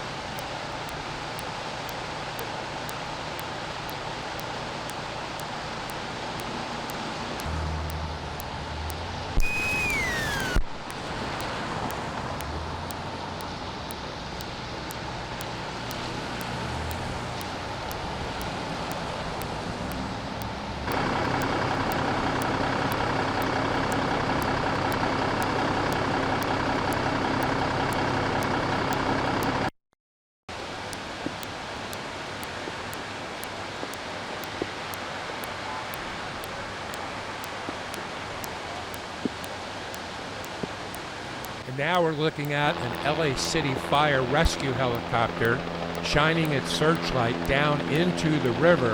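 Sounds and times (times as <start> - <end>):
vehicle engine and traffic noise: 0.2 - 9.4, 10.0 - 29.7, 30.5 - 48.9
steady engine hum: 0.2 - 29.7, 38.9 - 48.9
brief falling tone: 9.4 - 10.8.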